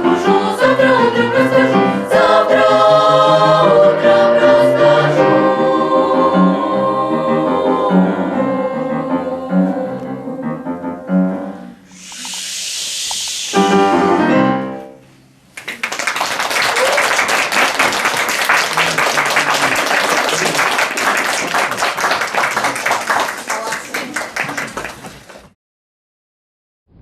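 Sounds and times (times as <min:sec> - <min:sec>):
children's choir singing: 0:00.0 - 0:11.3
hiss: 0:11.8 - 0:14.2.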